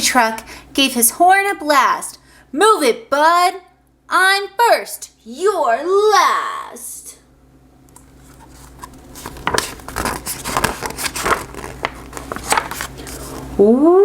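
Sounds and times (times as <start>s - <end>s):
paper pages rustling: 8.0s - 13.5s.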